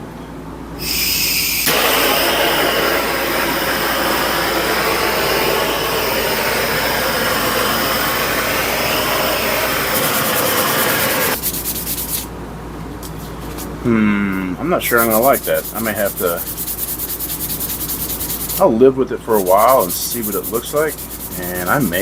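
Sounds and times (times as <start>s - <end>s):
torch flame hissing: 0.8s - 11.4s.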